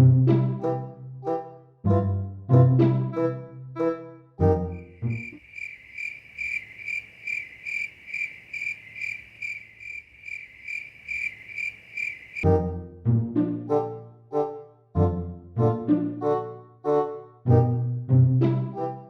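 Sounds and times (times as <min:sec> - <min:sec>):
brass comedy music: 0:00.0 - 0:05.2, 0:12.4 - 0:19.0
cricket chirping: 0:04.7 - 0:12.4.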